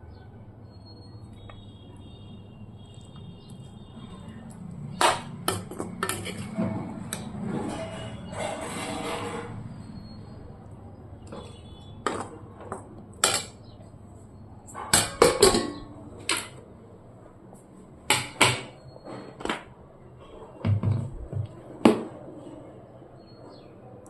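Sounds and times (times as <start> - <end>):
dishes and utensils clinking: 4.2 - 9.6, 11.3 - 13.8, 14.7 - 16.6.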